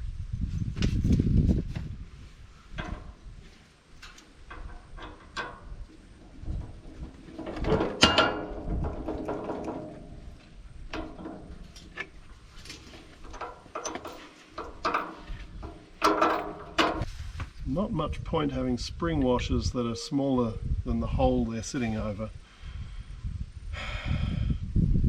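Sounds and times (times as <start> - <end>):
metal tools clicking and knocking: 4.0 - 17.1
loud ringing metal clank: 7.7 - 10.4.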